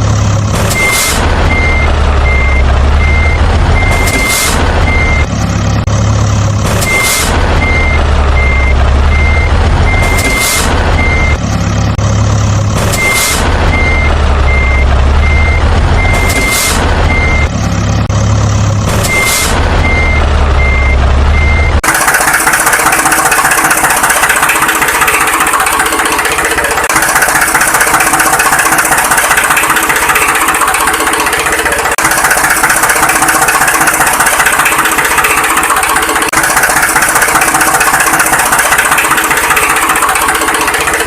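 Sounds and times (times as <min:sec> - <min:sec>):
diesel engine hum: 0:00.0 - 0:41.0
backup alarm beeping: 0:06.9 - 0:11.4, 0:13.0 - 0:17.5, 0:19.1 - 0:21.8.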